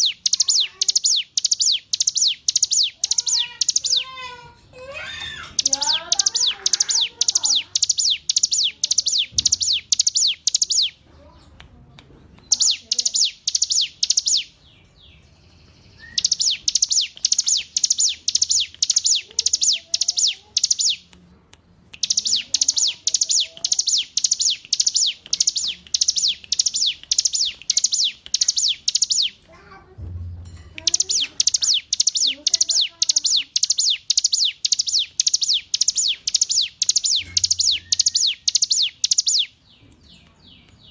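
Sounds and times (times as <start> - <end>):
bird singing sharp high notes: 5.1 - 11.0, 12.5 - 21.1, 22.0 - 29.4, 30.8 - 39.5
faint lower bird chirps: 5.1 - 11.4, 12.5 - 21.1, 30.8 - 40.9.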